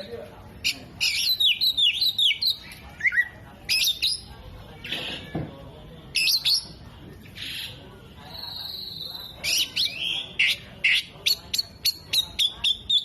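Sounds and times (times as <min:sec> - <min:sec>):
bird singing whistled notes: 0:01.0 - 0:04.2, 0:08.3 - 0:13.0.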